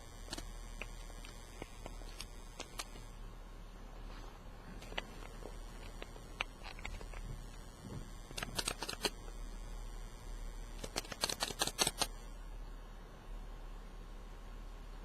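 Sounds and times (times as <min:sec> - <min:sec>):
rapid sharp clicks: 0:00.0 - 0:03.2, 0:04.8 - 0:12.4
faint steady low hum: 0:00.0 - 0:15.0.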